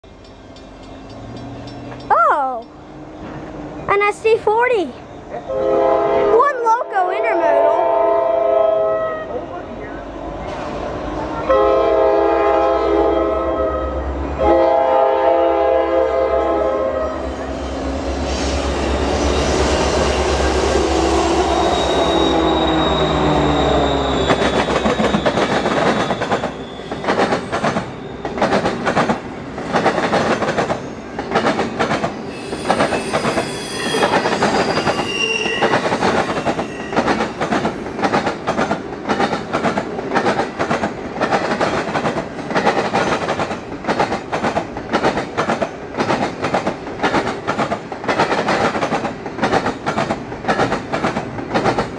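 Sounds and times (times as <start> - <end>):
wheels clacking over rail joints: 0.0 - 3.9, 24.0 - 33.4, 35.6 - 51.9
diesel locomotive engine droning: 0.0 - 51.9
high wheel squeals: 18.4 - 28.5, 32.2 - 38.0.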